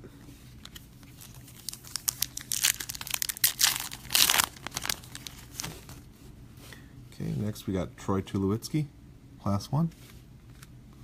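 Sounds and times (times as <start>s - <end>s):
card pack wrapper crinkling: 0.6s - 6.0s.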